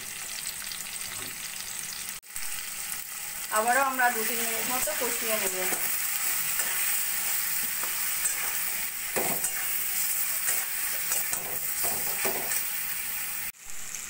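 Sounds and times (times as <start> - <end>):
vegetables sizzling in hot oil: 0.0 - 14.0
metal spatula scraping pan: 4.6 - 12.9.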